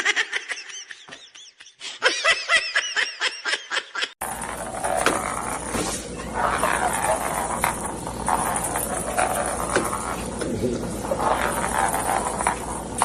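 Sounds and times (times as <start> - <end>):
high-pitched laughter: 0.0 - 4.2.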